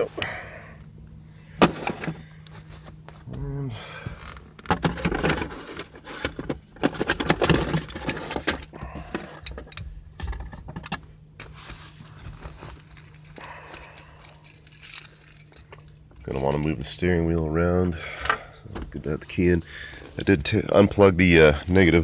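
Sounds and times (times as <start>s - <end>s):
keys jangling: 12.7s - 16.9s.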